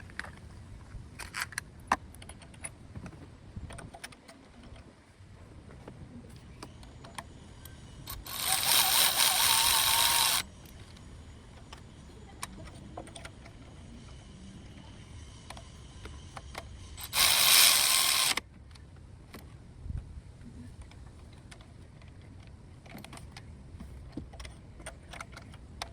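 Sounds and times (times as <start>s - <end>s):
tools clicking: 8.1s - 10.8s, 16.4s - 18.4s.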